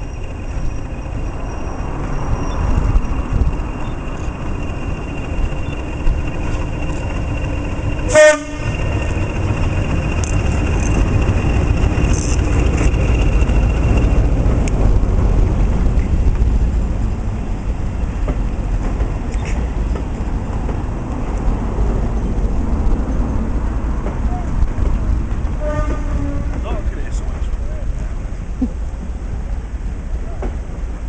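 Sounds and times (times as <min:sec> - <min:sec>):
diesel train rumbling: 0:00.0 - 0:31.0
train horn blast: 0:08.0 - 0:09.2, 0:25.5 - 0:26.9.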